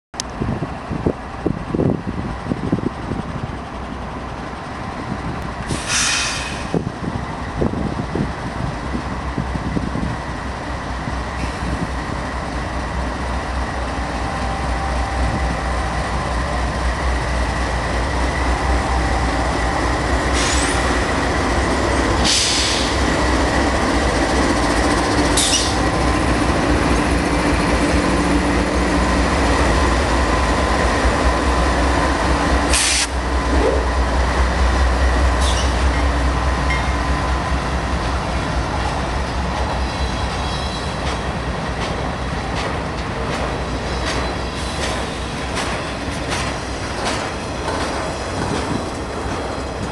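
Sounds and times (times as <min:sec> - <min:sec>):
diesel locomotives rumbling: 0:00.2 - 0:49.9
freight cars rolling on rails: 0:00.2 - 0:49.9.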